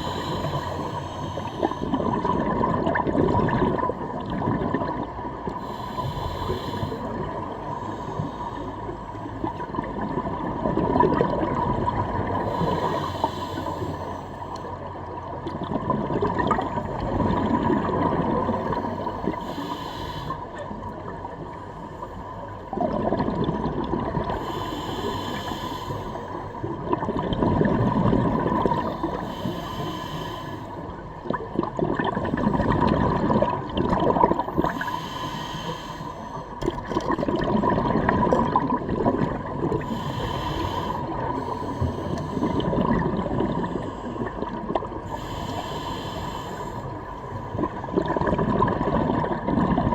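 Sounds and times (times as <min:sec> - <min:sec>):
bubbling exhalations: 0:01.6 - 0:05.2, 0:09.6 - 0:12.6, 0:22.7 - 0:25.0, 0:26.7 - 0:29.5, 0:31.1 - 0:35.6, 0:36.6 - 0:45.3, 0:47.5 - 0:49.9.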